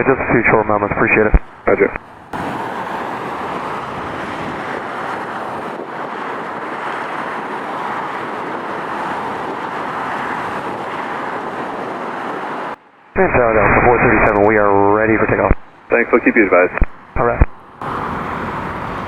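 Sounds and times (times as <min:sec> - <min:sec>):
jet engines idling: 0:00.4 - 0:12.8, 0:17.6 - 0:19.0
wind on microphone: 0:01.2 - 0:12.8.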